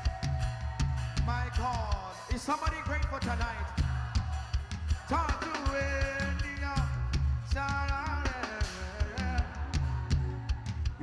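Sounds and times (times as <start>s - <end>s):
person singing: 0.0s - 11.0s
worship band playing: 0.0s - 11.0s.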